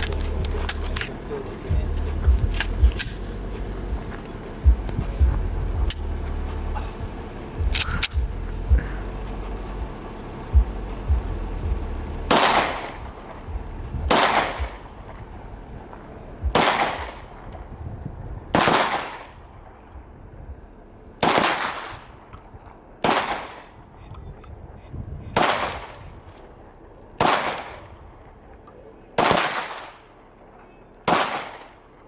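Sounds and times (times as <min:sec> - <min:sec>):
rifle gunshots with echo: 0:00.0 - 0:03.4, 0:06.9 - 0:09.3, 0:12.3 - 0:15.8, 0:16.4 - 0:17.5, 0:18.5 - 0:19.8, 0:21.2 - 0:22.3, 0:23.0 - 0:24.0, 0:25.4 - 0:26.4, 0:27.2 - 0:28.6, 0:29.2 - 0:30.2, 0:31.0 - 0:32.0.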